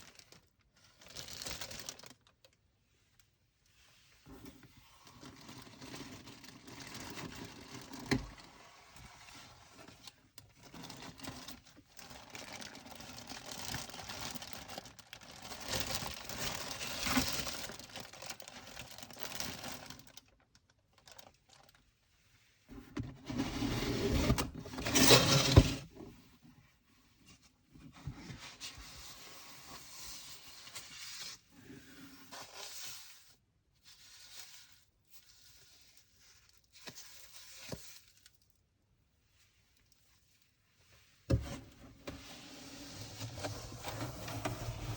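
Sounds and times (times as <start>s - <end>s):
packaging rustling and crinkling: 0.0s - 2.6s, 9.8s - 21.8s.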